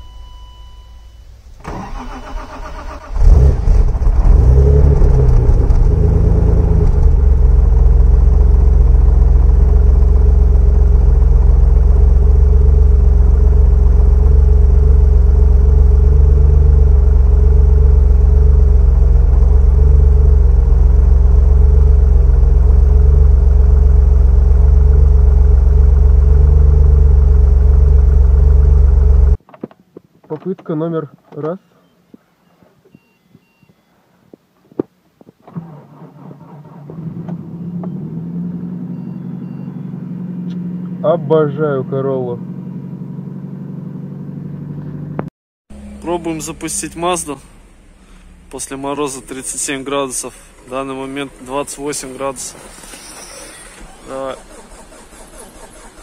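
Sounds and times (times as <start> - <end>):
car engine starting and idling: 0.0 - 29.4, 35.4 - 56.0
starter motor cranking: 52.6 - 56.0.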